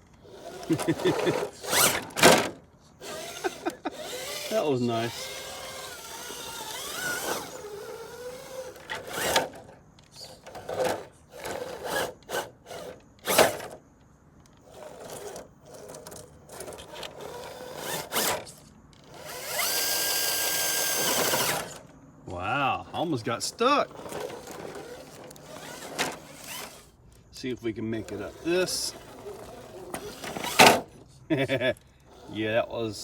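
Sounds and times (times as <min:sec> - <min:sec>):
electric motor whining: 0:00.2 - 0:13.8, 0:14.6 - 0:21.9, 0:23.0 - 0:26.9, 0:27.8 - 0:31.0, 0:32.1 - 0:32.7
tyres knocking and scraping rocks: 0:05.1 - 0:13.8, 0:14.6 - 0:19.5, 0:20.3 - 0:26.9.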